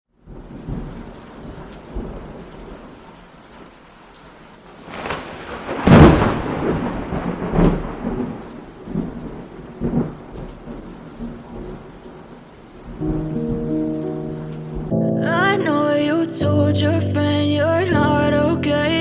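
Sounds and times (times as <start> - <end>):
steady rain: 0.1 - 19.0
thunderclap rumbling: 0.2 - 2.9, 4.8 - 15.0.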